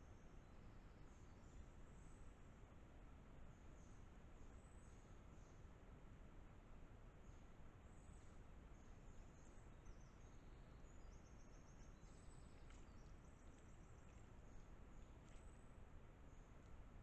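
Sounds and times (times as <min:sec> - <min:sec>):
songbird chirps and trills: 0:07.2 - 0:17.0.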